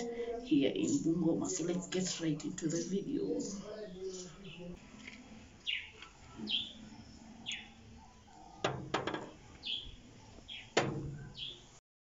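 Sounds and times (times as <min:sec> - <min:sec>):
small bird chirping: 0:05.6 - 0:08.6, 0:09.2 - 0:11.8.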